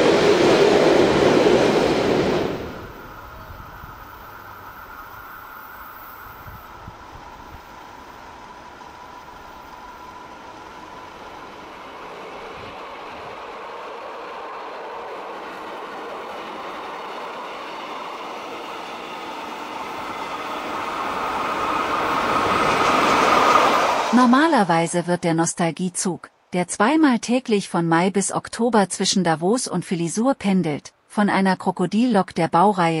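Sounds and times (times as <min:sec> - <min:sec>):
train running on rails: 0:00.0 - 0:25.8
faint high whine: 0:02.6 - 0:11.6.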